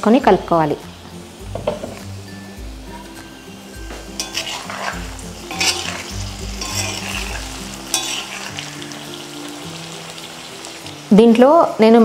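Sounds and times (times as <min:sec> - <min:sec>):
vegetables sizzling in oil: 0:00.0 - 0:12.0
ladle scraping a pan: 0:04.1 - 0:09.2.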